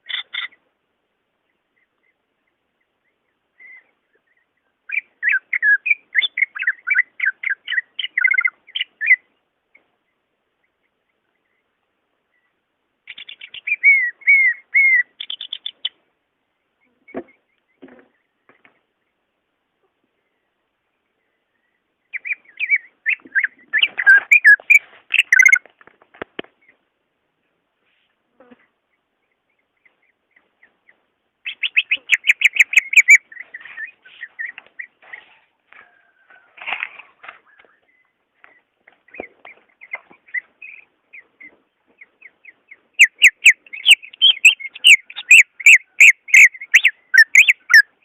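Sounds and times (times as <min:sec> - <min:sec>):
bird singing: 0:00.0 - 0:00.6, 0:01.3 - 0:16.0, 0:16.6 - 0:19.4, 0:20.0 - 0:25.7, 0:28.8 - 0:48.0
bird chirping and whistling: 0:13.1 - 0:15.7, 0:22.2 - 0:25.6, 0:31.5 - 0:34.5, 0:43.0 - 0:47.9.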